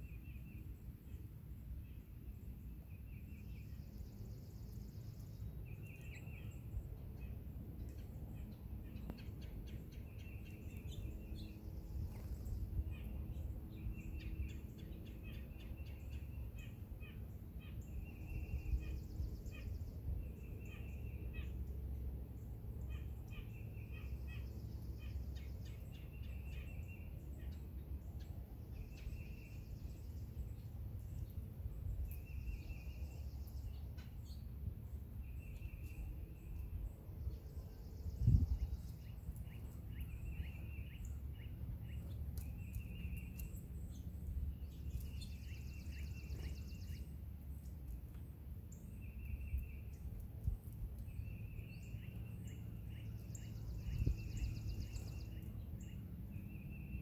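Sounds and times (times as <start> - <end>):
steady low rumble: 16.6 - 56.6
bird chirps: 35.2 - 47.2, 51.0 - 57.0.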